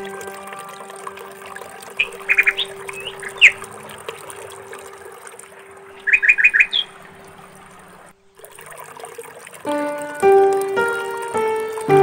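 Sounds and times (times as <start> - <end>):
songbird chirping: 0.0 - 8.3.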